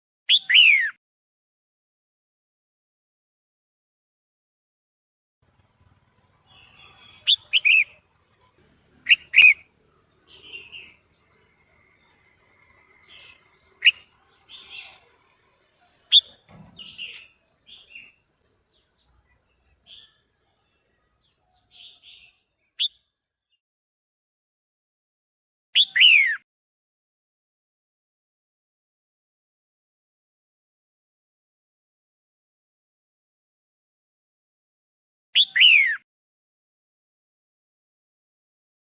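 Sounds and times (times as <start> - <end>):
bird soft chirps and chatter: 5.5 - 23.0
bird sharp down-slurred calls: 5.8 - 8.1, 9.0 - 11.4, 12.0 - 15.2, 16.0 - 18.2.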